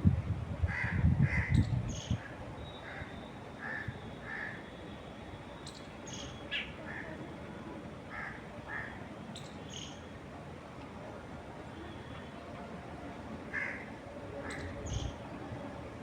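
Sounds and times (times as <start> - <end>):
wind gusts: 0.0 - 4.7, 12.4 - 16.0.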